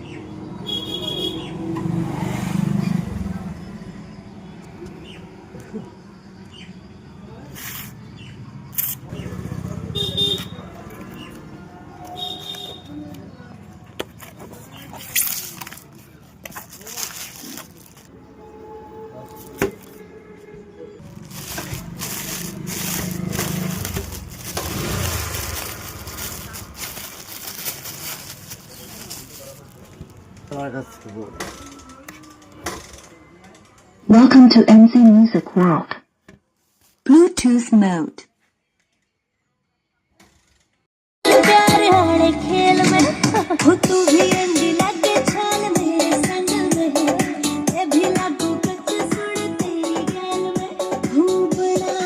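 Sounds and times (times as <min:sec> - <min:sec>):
vehicle engine passing: 0:01.4 - 0:05.9, 0:07.8 - 0:14.8, 0:17.5 - 0:31.9
packaging crackling and rubbing: 0:14.2 - 0:18.1, 0:21.0 - 0:30.3.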